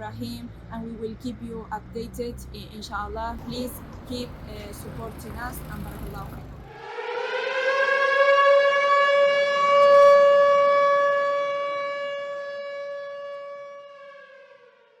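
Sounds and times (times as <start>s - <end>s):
siren-like wail: 5.3s - 15.0s.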